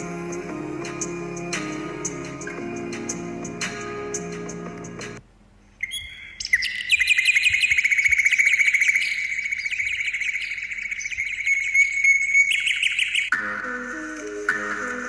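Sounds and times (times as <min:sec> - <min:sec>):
bird trilling high chirps: 0:05.8 - 0:13.4.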